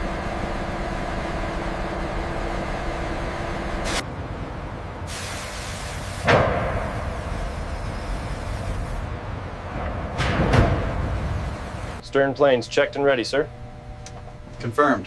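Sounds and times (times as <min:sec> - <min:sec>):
hiss: 0:05.1 - 0:09.0
heavy clunk: 0:09.7 - 0:11.4.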